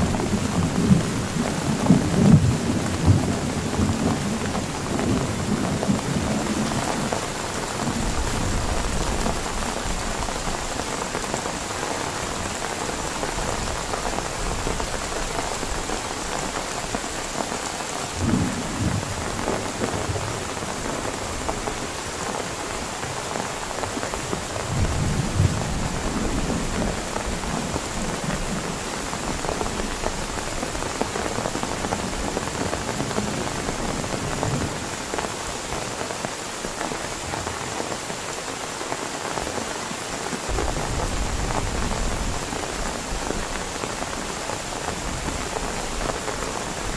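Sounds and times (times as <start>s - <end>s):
heavy rain falling: 0.0s - 46.9s
low thunder rumble: 40.5s - 43.4s.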